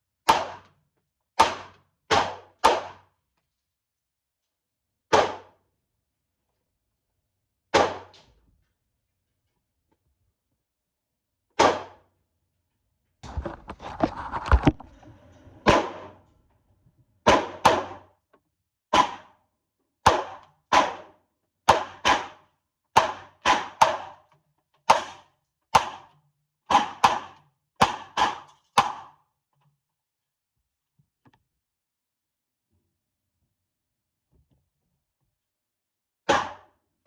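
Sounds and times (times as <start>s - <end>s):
pistol shots: 17.3s - 18.0s, 36.3s - 36.6s.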